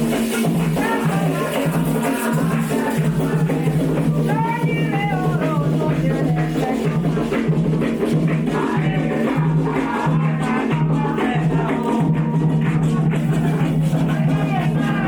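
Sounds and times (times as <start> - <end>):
drums: 0.0 - 15.0
shaker: 0.0 - 15.0
voices singing a chant: 0.0 - 15.0.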